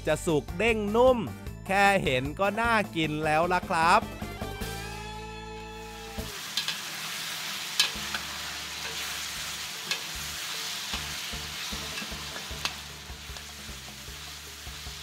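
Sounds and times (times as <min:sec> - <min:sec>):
liver sizzling in oil: 0:05.6 - 0:15.0
metal spatula clicking on wok: 0:06.5 - 0:06.9, 0:07.7 - 0:09.2, 0:09.8 - 0:10.2, 0:10.9 - 0:11.2, 0:11.8 - 0:13.6.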